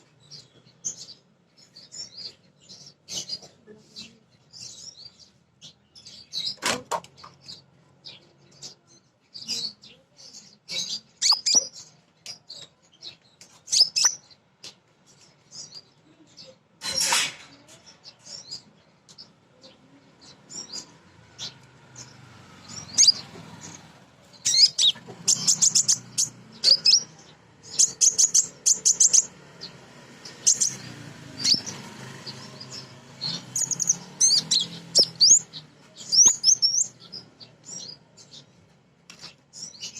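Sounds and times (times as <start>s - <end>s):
sunbird high chirps: 7.5s - 14.4s, 17.7s - 38.5s.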